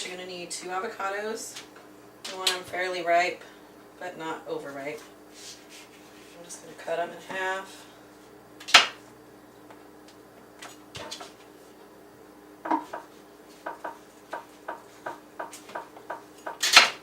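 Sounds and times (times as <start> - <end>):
knife tapping on cutting board: 12.7 - 16.6.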